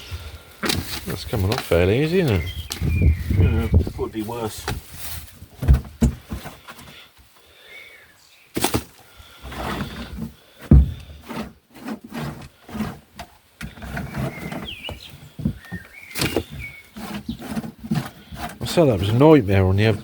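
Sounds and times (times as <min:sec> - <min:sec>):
sudden knocks: 0:10.7 - 0:11.0
metal scraper scraping and tearing: 0:11.1 - 0:14.8, 0:16.1 - 0:20.0.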